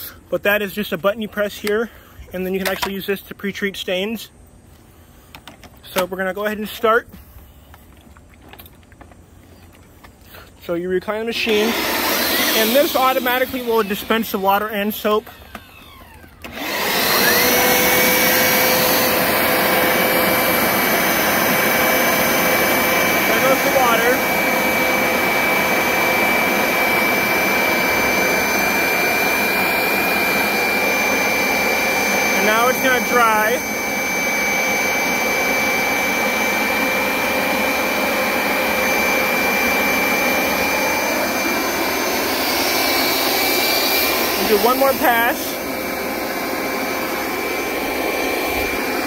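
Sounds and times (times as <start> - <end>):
carpet cleaner motor whining: 11.1 - 49.0.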